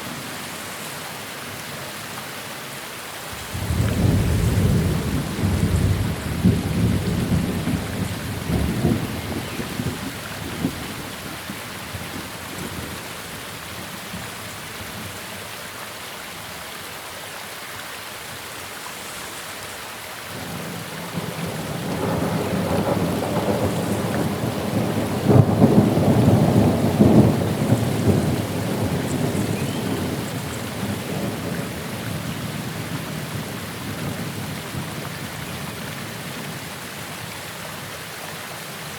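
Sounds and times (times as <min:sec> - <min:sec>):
steady rain: 0:00.0 - 0:38.9
rolling thunder: 0:03.4 - 0:11.1, 0:20.4 - 0:35.0.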